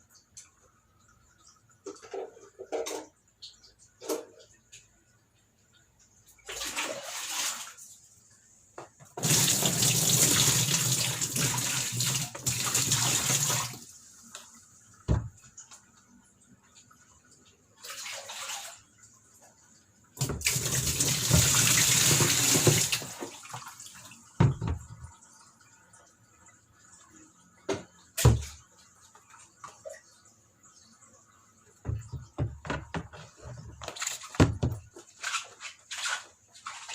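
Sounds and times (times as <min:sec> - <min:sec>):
tap water running: 0:00.0 - 0:36.9
water splashing: 0:06.4 - 0:07.9, 0:17.4 - 0:19.2, 0:31.8 - 0:36.9.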